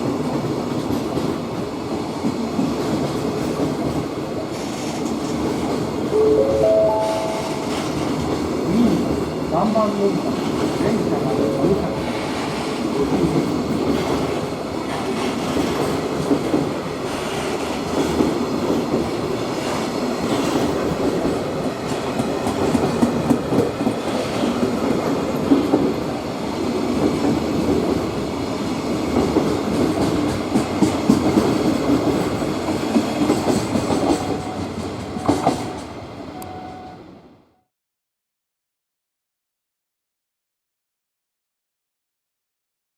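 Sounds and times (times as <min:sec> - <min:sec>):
freight train wheels clattering: 0:29.0 - 0:36.0.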